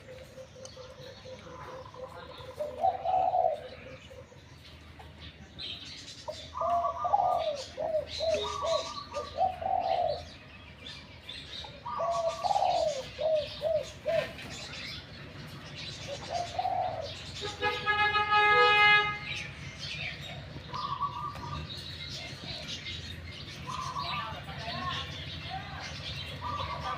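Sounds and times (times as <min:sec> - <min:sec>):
dove cooing: 0:00.0 - 0:04.6, 0:06.2 - 0:10.5, 0:11.6 - 0:18.9, 0:20.0 - 0:24.4, 0:26.2 - 0:26.9
small birds chirping: 0:00.0 - 0:26.9.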